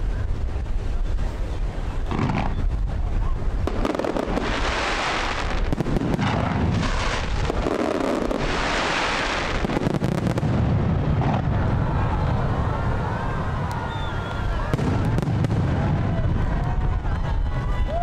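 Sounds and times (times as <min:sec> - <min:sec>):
fireworks crackling: 0:00.0 - 0:18.0
firework shells booming: 0:03.7 - 0:11.5.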